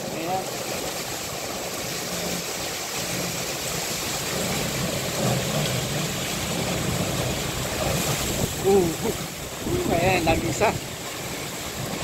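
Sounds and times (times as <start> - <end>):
heavy rain on pavement: 0.0 - 12.0
strong wind: 6.0 - 12.0.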